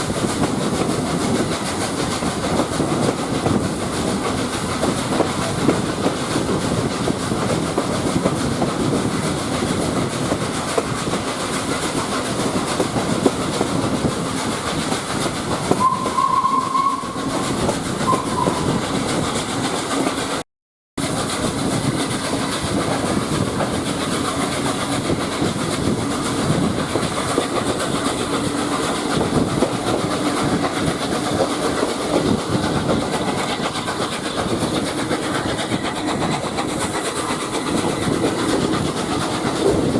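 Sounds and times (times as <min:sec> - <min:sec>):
train wheels clickety-clack on track: 0:00.0 - 0:20.4, 0:21.0 - 0:39.9
steam locomotive whistle: 0:15.6 - 0:19.2.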